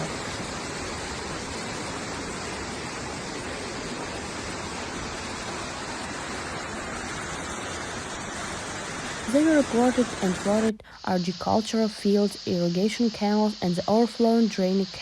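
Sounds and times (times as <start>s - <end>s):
floodwater rushing: 0.0s - 10.7s.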